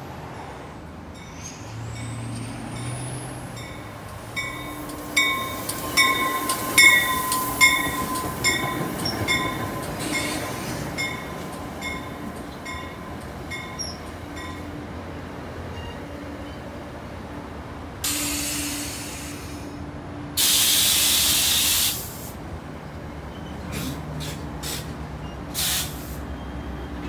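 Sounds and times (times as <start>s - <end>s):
train wheels squealing: 1.2s - 12.1s, 12.8s - 14.5s, 18.1s - 19.8s, 23.3s - 27.0s
crossing bell dinging: 1.2s - 14.8s.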